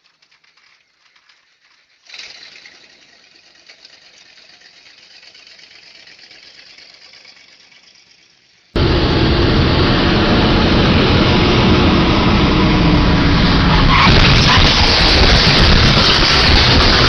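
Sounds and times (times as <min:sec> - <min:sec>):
vehicle engine and road noise: 0:08.8 - 0:17.0.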